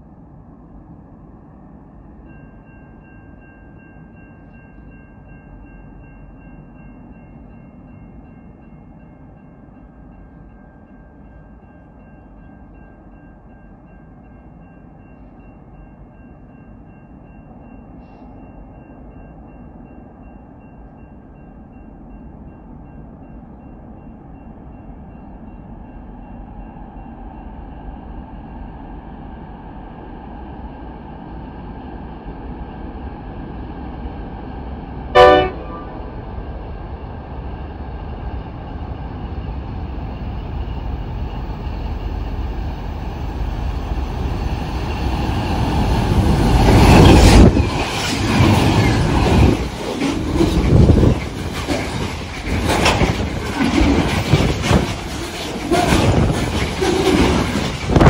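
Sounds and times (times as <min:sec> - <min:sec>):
diesel train rumble: 0:00.0 - 0:58.0
train horn blast: 0:35.1 - 0:36.1
train wheels clattering on rails: 0:37.0 - 0:58.0.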